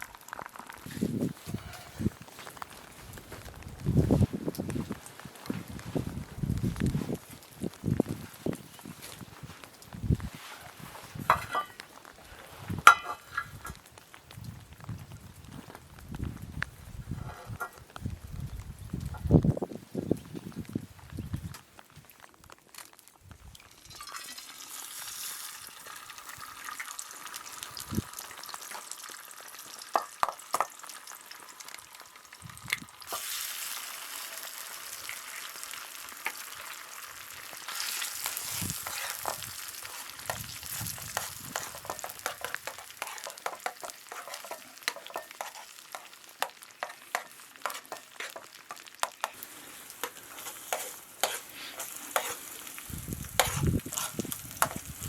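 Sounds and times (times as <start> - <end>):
crackles and pops: 0.0 - 55.0
food sizzling in a pan: 23.6 - 55.0.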